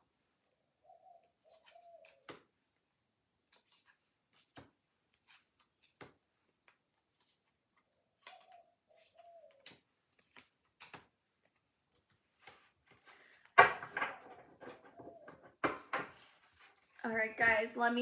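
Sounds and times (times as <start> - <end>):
bird calls: 0.6 - 2.3, 7.9 - 9.8, 14.1 - 15.6
cards clicking and tapping: 1.5 - 2.6, 3.4 - 16.3.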